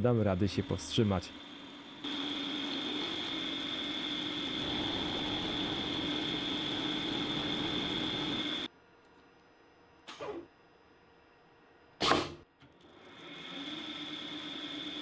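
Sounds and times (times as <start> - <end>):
lathe cutting with high whine: 0.0 - 8.7.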